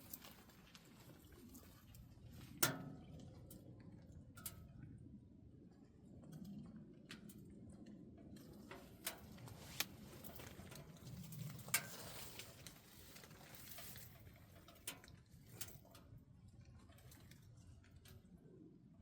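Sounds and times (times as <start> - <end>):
wood fire crackles: 8.3 - 18.2.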